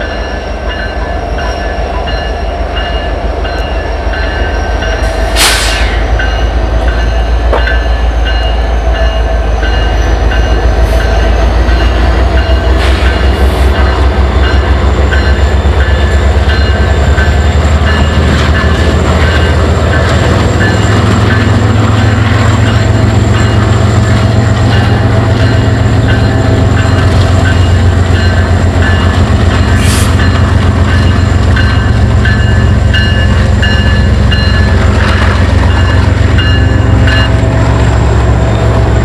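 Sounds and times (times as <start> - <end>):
diesel locomotive engine throttling up: 4.8 - 7.0
air hiss: 5.2 - 6.1.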